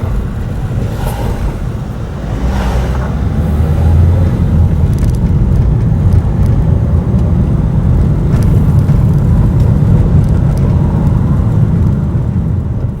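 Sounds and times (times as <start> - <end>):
passing vehicle low rumble: 0.0 - 13.0.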